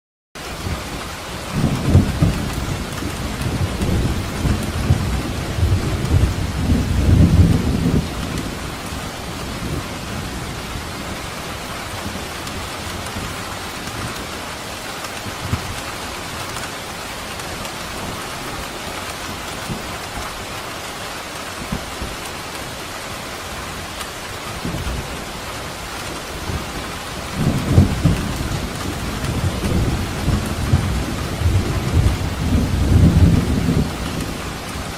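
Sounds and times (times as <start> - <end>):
rain falling: 0.4 - 34.9
low rolling thunder: 0.6 - 11.3, 24.5 - 34.9.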